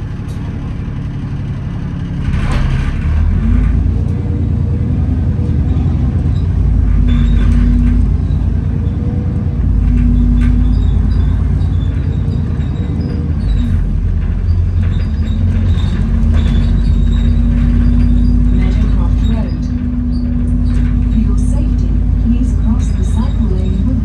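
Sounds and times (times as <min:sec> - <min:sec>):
bus engine droning: 0:00.0 - 0:24.0
light rattles: 0:05.4 - 0:08.7, 0:09.5 - 0:24.0.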